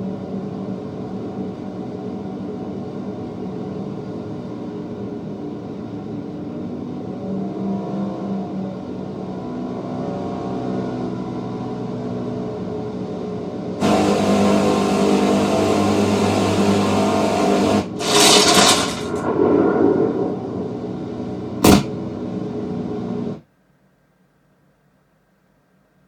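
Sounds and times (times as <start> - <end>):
engine-like drone: 0.0 - 23.4
loud rushing noise: 17.9 - 22.5
sharp bang: 18.0 - 22.1.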